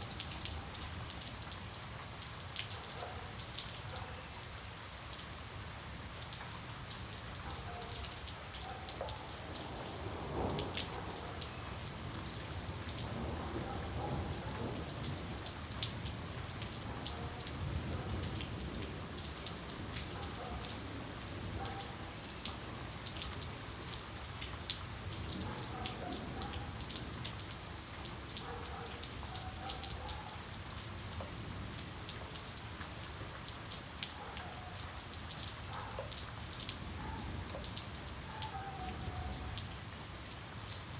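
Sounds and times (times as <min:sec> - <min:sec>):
raindrops ticking close by: 0:00.0 - 0:40.9
steady rain falling: 0:00.0 - 0:40.9
distant thunder rumbling: 0:09.3 - 0:16.5.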